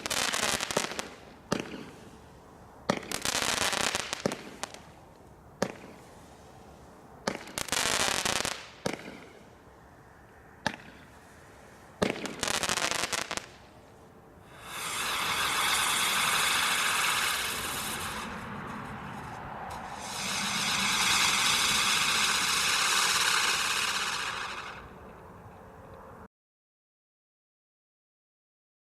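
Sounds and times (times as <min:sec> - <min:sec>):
fireworks bangs: 0:00.0 - 0:02.0, 0:02.9 - 0:04.9, 0:07.2 - 0:09.4, 0:12.0 - 0:13.6, 0:14.5 - 0:25.0
fireworks crackling: 0:00.0 - 0:09.7, 0:10.6 - 0:25.2.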